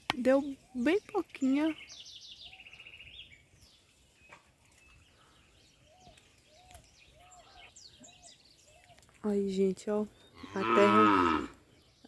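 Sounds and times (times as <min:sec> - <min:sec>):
faint birdsong: 0:00.0 - 0:12.0
low rounded bird notes: 0:00.3 - 0:12.0.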